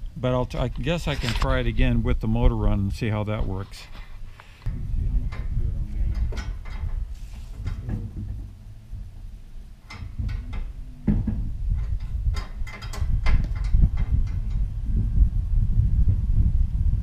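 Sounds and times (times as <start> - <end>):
metal clicks and knocks: 6.1 - 7.0, 9.8 - 14.6.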